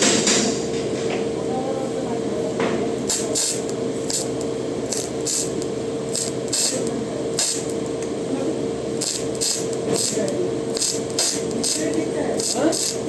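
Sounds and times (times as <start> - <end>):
steady hum: 0.0 - 13.0
gas torch hissing: 2.9 - 8.2, 8.8 - 13.0.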